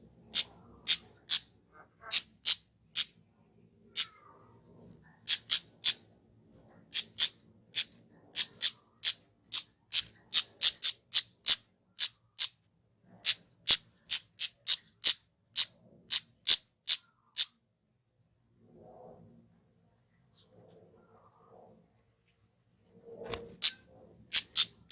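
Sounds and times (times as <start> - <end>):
bird giving sharp call notes: 23.6 - 24.9.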